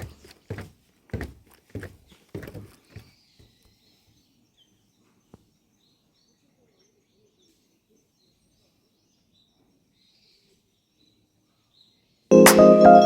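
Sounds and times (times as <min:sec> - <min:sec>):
faint bird chirps: 0:02.8 - 0:12.3.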